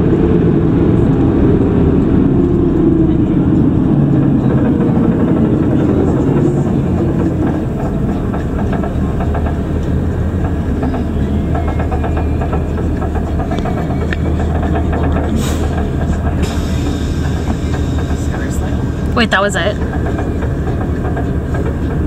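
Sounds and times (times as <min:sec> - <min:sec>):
bus engine hum: 0:00.0 - 0:22.0
road rumble: 0:00.0 - 0:22.0.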